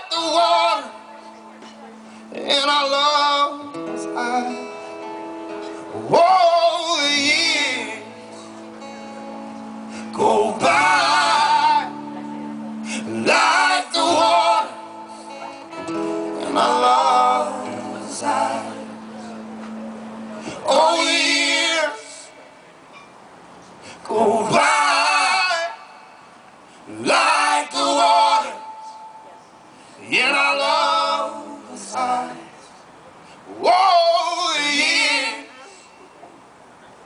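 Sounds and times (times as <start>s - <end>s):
male and female voices singing: 0.0s - 1.1s, 9.9s - 19.5s, 20.4s - 22.4s, 24.0s - 26.2s, 26.9s - 29.0s, 30.0s - 32.8s, 33.6s - 35.8s
held guitar chords: 0.0s - 22.4s, 27.0s - 29.5s.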